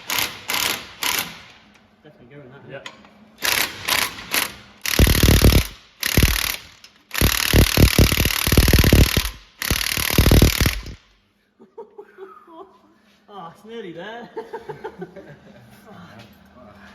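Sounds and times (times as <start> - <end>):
pneumatic air tool hammering: 0.0 - 1.6, 3.4 - 11.1.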